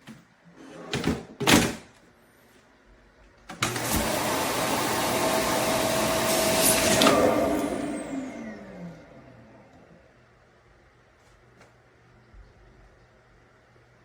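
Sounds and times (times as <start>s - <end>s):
vacuum cleaner motor running: 3.6s - 10.0s.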